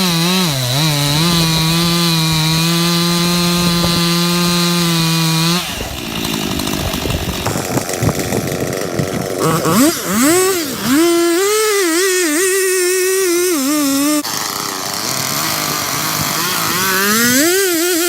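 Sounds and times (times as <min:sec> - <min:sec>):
chainsaw cutting wood: 0:00.0 - 0:18.0
crackling and knocking: 0:00.7 - 0:09.4.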